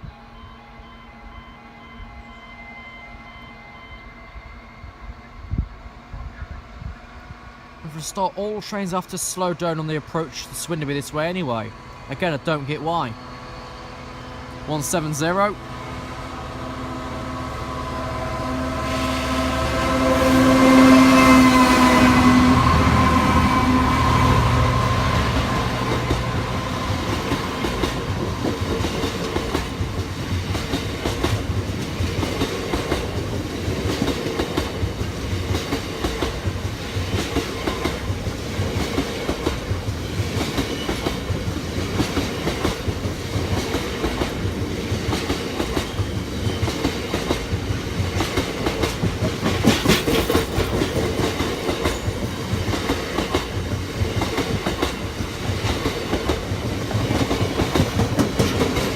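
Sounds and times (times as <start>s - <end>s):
train rumble: 0.0s - 58.9s
train wheels clicking over rails: 20.9s - 58.9s.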